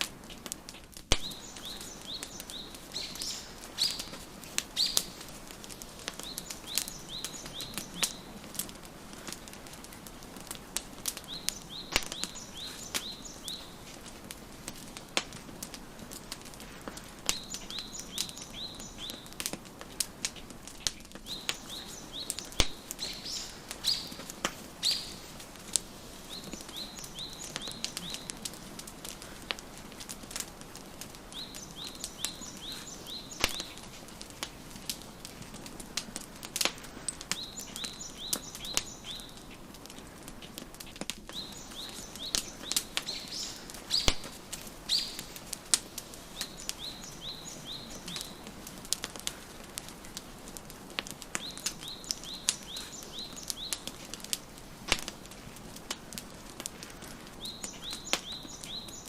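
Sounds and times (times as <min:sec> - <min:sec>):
faint steady hiss: 0:00.0 - 0:59.0
wood fire crackling and popping: 0:00.0 - 0:59.0
songbird chirping: 0:00.7 - 0:10.2, 0:11.0 - 0:14.9, 0:17.2 - 0:19.4, 0:20.2 - 0:35.1, 0:37.2 - 0:39.7, 0:41.3 - 0:48.7, 0:51.3 - 0:54.1, 0:57.4 - 0:59.0.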